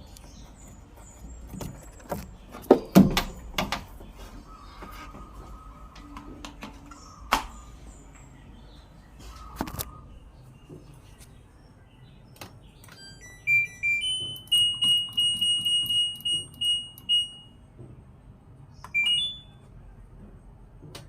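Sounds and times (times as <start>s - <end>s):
washing machine electronic beeps: 12.8s - 17.7s, 18.8s - 19.7s.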